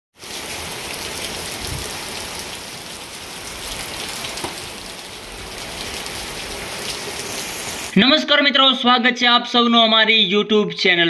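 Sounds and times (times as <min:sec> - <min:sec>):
heavy rain falling: 0:00.2 - 0:08.0.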